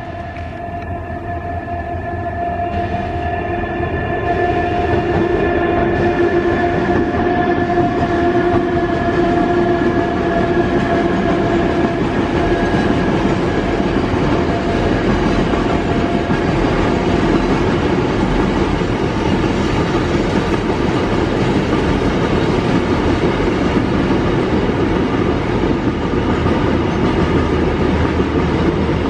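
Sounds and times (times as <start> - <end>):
whining tones: 0.0 - 17.8
train wheels rumbling on rails: 0.0 - 29.0.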